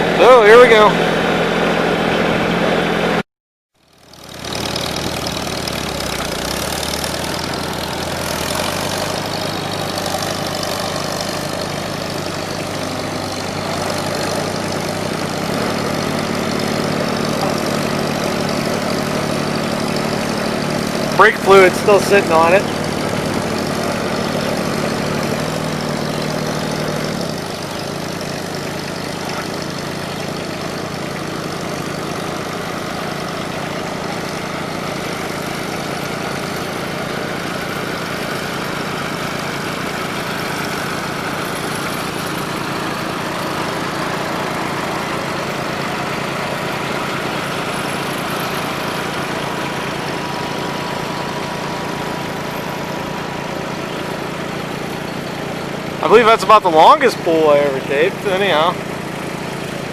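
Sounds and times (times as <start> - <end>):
tractor engine under load: 0.0 - 3.2, 3.8 - 59.9.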